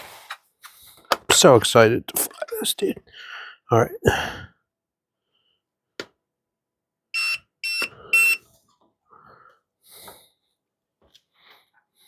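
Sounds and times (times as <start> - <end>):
transmitter beeping: 7.2 - 8.4.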